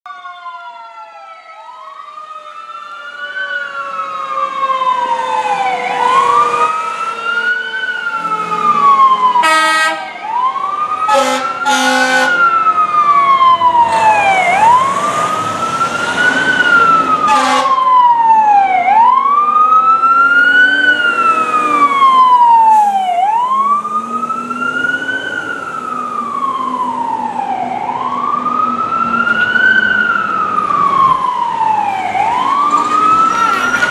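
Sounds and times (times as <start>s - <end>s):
fire engine siren wailing: 0.1s - 33.9s
lower siren tone falling: 0.1s - 33.9s
short horn blasts: 9.4s - 10.1s, 11.1s - 12.4s, 17.2s - 17.8s.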